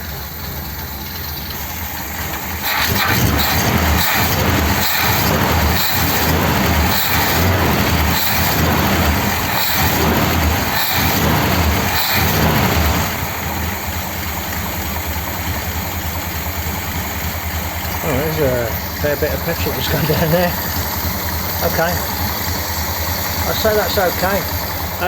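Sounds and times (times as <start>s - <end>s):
car engine running unevenly: 0.0s - 25.0s.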